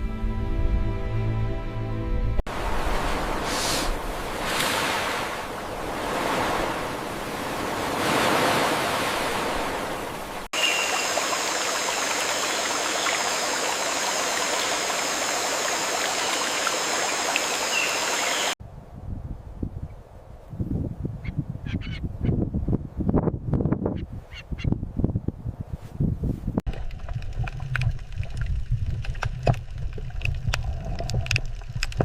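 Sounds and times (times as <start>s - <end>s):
rushing water: 2.5s - 18.6s, 26.7s - 32.0s
high even hiss: 3.4s - 4.0s.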